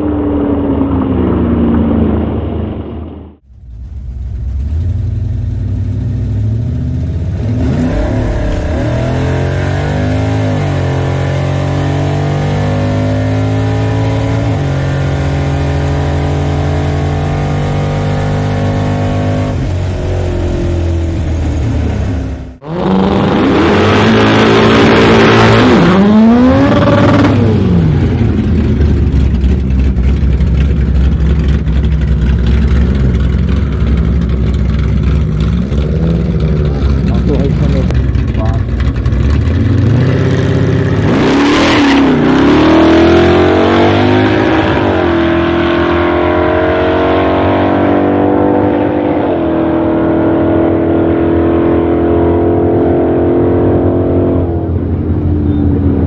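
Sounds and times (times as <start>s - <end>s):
car engine revving through gears: 5.0s - 56.0s.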